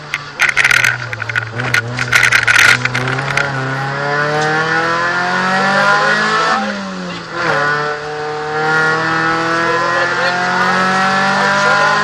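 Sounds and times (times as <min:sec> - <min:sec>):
loud rattling clatter: 0:00.0 - 0:03.6
car engine revving: 0:00.0 - 0:12.0.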